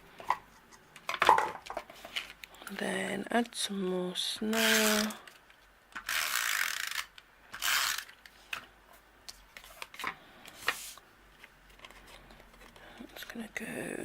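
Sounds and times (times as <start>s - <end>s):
tape runner ratcheting whir: 6.0s - 8.2s.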